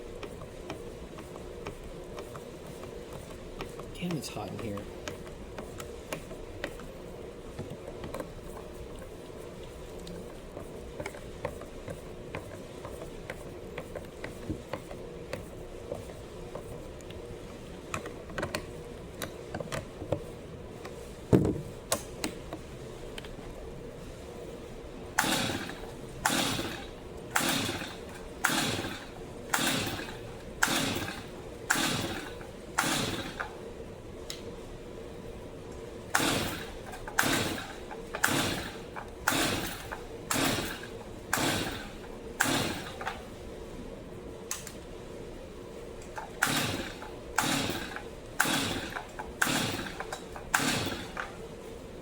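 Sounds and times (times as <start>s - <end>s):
chainsaw recoil starter pulls: 25.2s - 33.6s, 36.2s - 43.3s, 46.2s - 51.4s.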